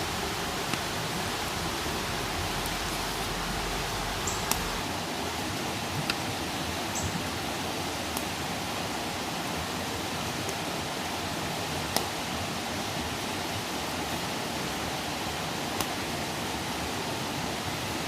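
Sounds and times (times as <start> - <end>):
fire crackles: 0.0 - 6.5, 9.7 - 12.9, 15.6 - 16.4
campfire hissing: 0.0 - 18.0.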